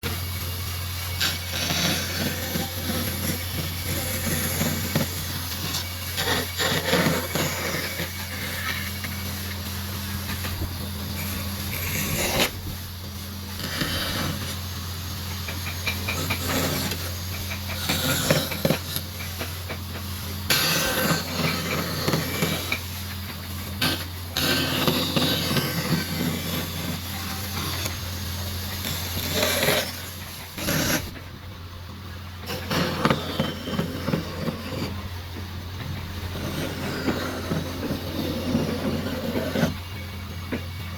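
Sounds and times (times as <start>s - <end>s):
wood scraping and rasping: 0.0s - 12.9s, 13.5s - 31.3s, 32.4s - 40.6s
steady low hum: 0.0s - 40.9s.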